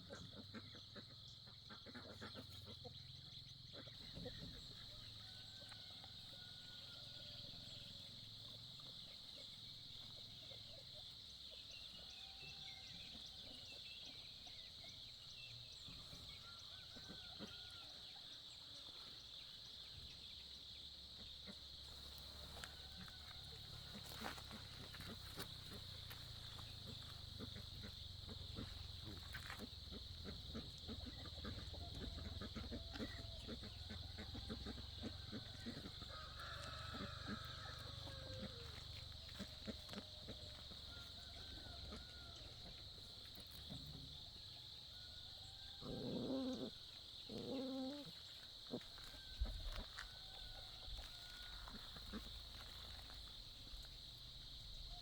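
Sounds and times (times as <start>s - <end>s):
chickens clucking: 21.4s - 44.4s.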